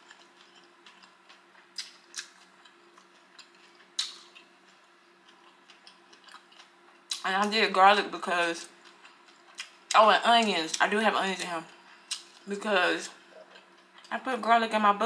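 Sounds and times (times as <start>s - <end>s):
chewing with wet mouth clicks: 0.0s - 7.5s, 8.6s - 10.5s, 12.1s - 12.5s, 13.4s - 14.1s
faint steady hum: 0.0s - 15.0s.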